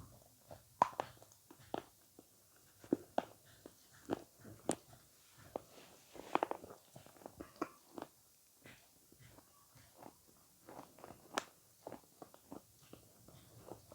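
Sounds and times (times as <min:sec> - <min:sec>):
wet chewing mouth clicks: 0:06.4 - 0:08.2.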